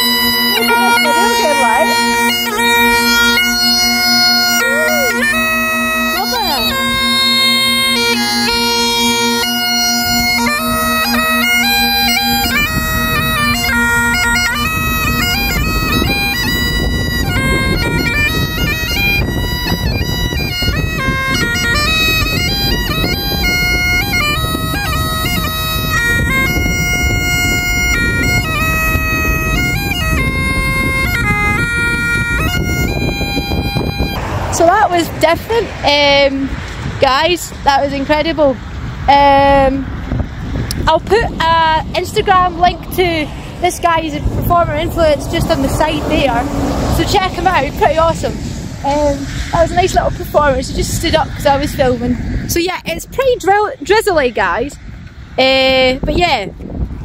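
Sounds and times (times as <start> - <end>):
bagpipes playing: 0.0 - 52.0
low noisy rumble: 33.3 - 52.6.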